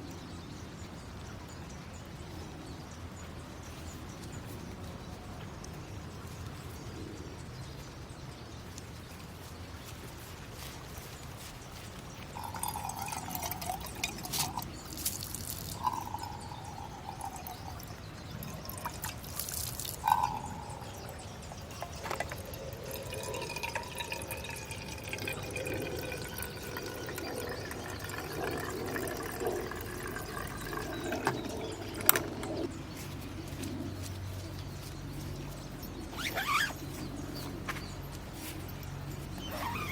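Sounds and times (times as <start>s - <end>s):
liquid pouring into container: 12.3s - 32.8s
handling clicks and knocks: 28.1s - 39.9s.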